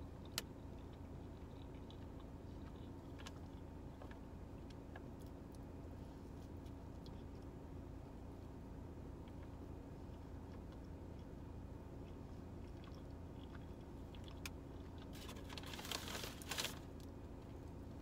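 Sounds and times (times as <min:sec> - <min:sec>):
close-up chewing: 0:00.0 - 0:05.7, 0:06.4 - 0:07.6, 0:09.2 - 0:17.8
steady low hum: 0:00.0 - 0:18.0
paper bag crinkling: 0:15.1 - 0:16.9.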